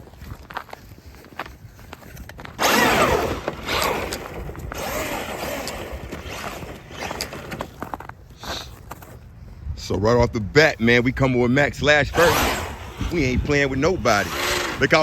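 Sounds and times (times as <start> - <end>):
tyre noise on pavement: 0.0 - 10.0
electric motor whine: 2.6 - 7.6, 12.2 - 15.0.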